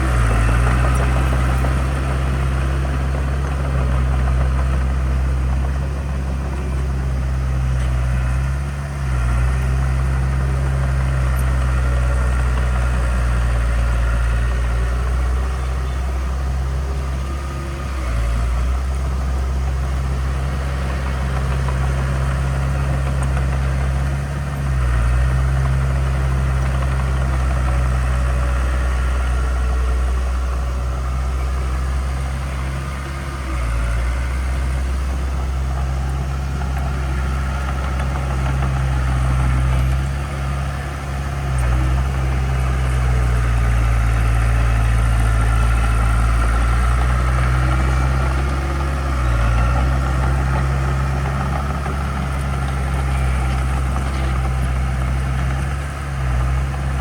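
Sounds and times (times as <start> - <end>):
heavy diesel engine droning: 0.0 - 57.0.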